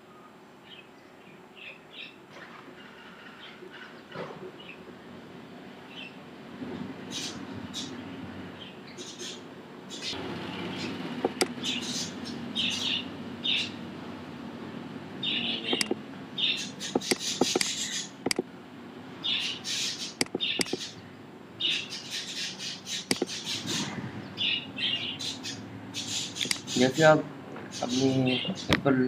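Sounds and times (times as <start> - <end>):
small birds chirping: 0.2 - 2.4, 5.8 - 6.3, 7.1 - 13.9, 15.1 - 18.4, 19.2 - 29.0
computer mouse clicks: 11.2 - 11.5, 15.7 - 16.0, 16.9 - 18.4, 20.2 - 20.9, 23.1 - 23.3, 26.4 - 26.7.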